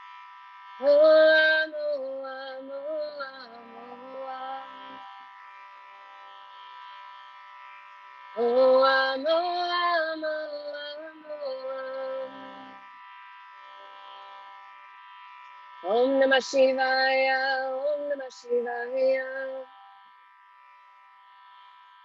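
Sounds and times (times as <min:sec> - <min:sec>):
woman chanting melodically: 0:00.8 - 0:05.2, 0:08.4 - 0:12.8, 0:15.8 - 0:19.8.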